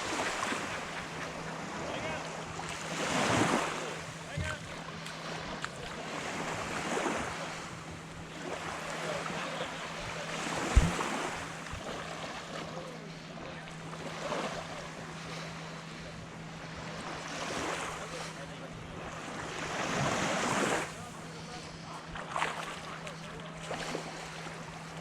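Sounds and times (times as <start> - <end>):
small waves breaking on beach: 0.0 - 25.0
wind on microphone: 10.7 - 11.0
sharp thump: 10.7 - 11.1.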